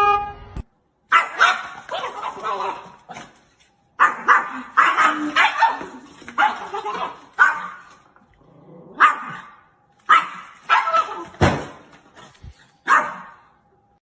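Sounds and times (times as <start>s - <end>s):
dog barking: 1.1s - 3.4s, 4.0s - 8.0s, 9.0s - 11.4s, 12.8s - 13.5s.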